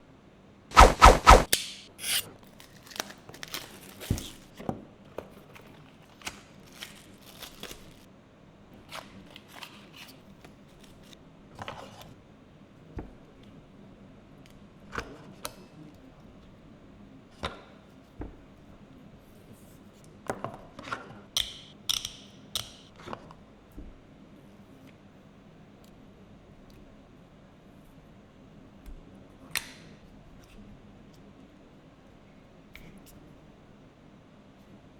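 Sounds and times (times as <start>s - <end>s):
packaging clicks and rubbing: 2.2s - 4.6s, 5.5s - 8.1s
crackly packaging rustles: 2.4s - 8.1s, 8.8s - 11.2s.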